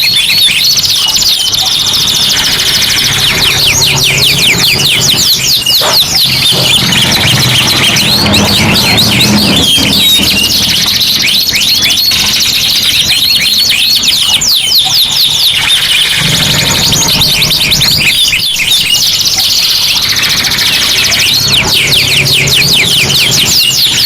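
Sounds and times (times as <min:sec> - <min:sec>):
canaries singing: 0:00.0 - 0:24.0.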